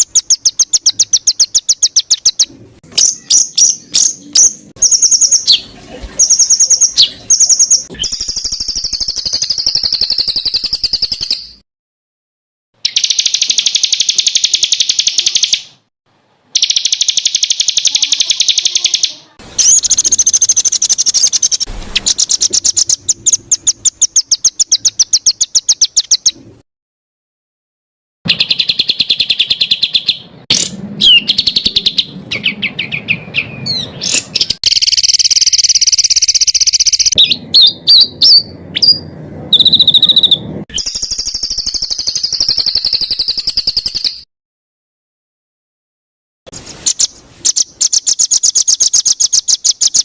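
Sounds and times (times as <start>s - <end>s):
songbird rapid repeated high notes: 16.6s - 26.2s, 34.6s - 38.4s.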